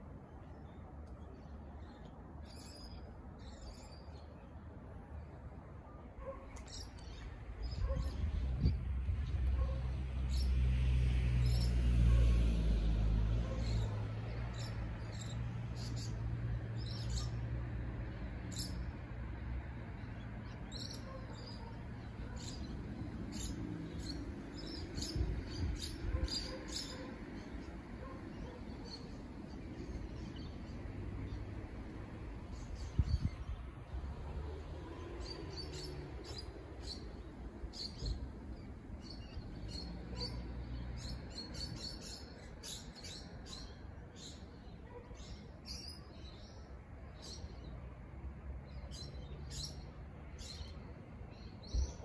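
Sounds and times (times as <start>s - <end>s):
small birds chirping: 19.9s - 47.8s.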